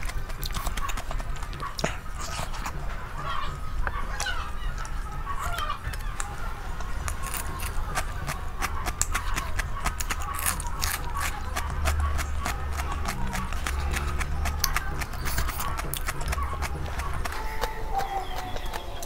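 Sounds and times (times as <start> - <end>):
crunchy chewing: 0.0 - 19.0
fingers mixing wet food: 0.0 - 19.0
steady low hum: 0.0 - 19.0.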